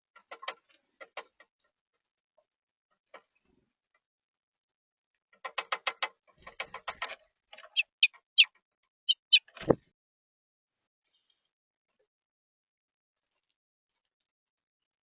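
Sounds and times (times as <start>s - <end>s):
bird chip calls: 7.7s - 8.5s, 9.1s - 9.8s.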